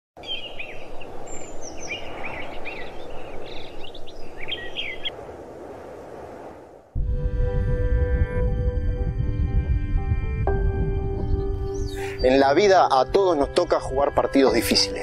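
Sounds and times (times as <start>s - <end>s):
small birds chirping: 0.2s - 5.1s, 11.2s - 12.8s.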